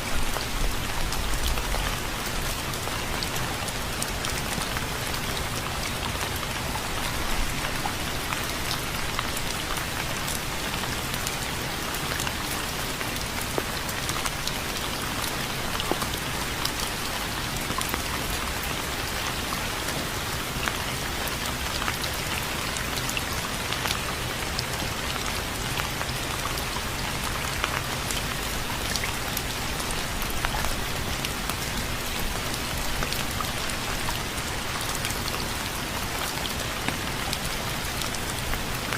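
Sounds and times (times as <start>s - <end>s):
rain drops ticking on surface: 0.0s - 38.9s.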